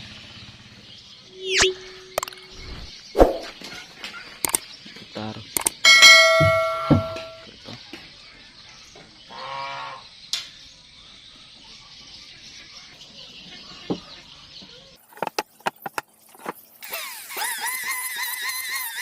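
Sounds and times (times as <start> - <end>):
warbling tone: 1.3 - 3.6
sharp clicks: 1.6 - 2.5, 4.4 - 4.6, 5.5 - 5.8.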